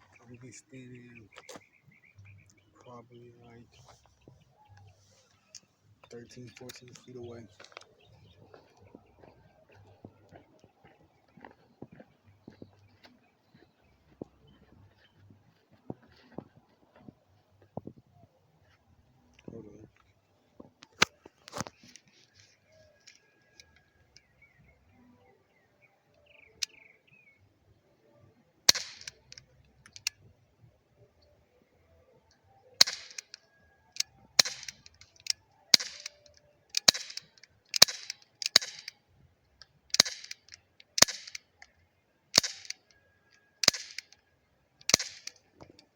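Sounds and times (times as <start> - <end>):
bb pistol shots: 28.7 - 30.1, 32.8 - 33.4, 34.0 - 39.0, 39.9 - 41.4, 42.3 - 42.8, 43.6 - 44.2, 44.9 - 45.5.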